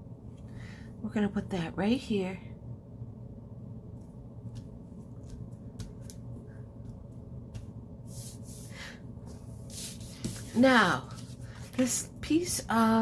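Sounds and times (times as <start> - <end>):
steady low hum: 0.0 - 13.0
paper sliding swishes: 7.6 - 11.9.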